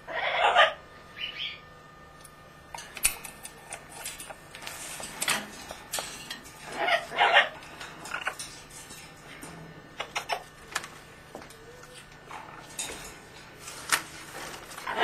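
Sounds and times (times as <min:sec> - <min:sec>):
pet bird squawking: 0:00.1 - 0:01.7, 0:06.7 - 0:07.6, 0:10.0 - 0:10.5.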